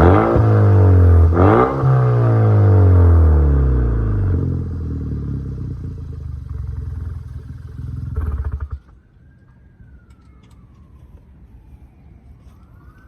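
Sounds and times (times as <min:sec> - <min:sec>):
car engine revving and idling: 0:00.0 - 0:08.9.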